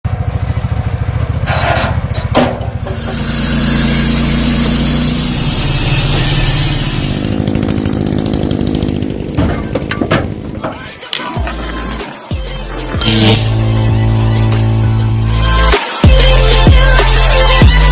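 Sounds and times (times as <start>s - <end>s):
gas-powered saw cutting wood: 2.8s - 10.8s, 13.0s - 15.6s.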